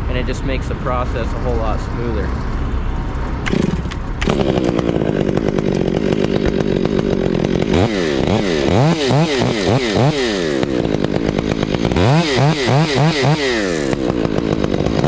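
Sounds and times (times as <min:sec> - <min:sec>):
chainsaw engine revving: 0:03.4 - 0:15.0.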